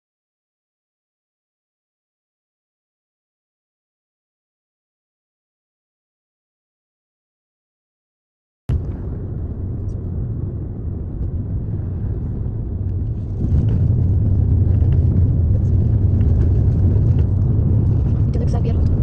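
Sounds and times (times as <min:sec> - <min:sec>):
moving car rumble: 0:08.7 - 0:19.0.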